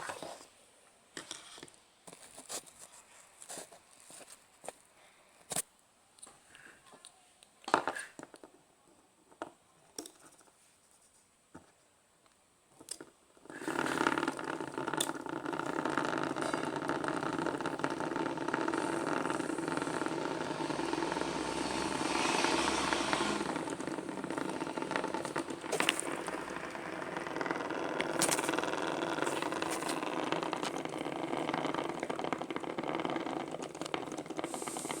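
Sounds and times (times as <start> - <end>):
electric fan whirring: 13.7 - 35.0.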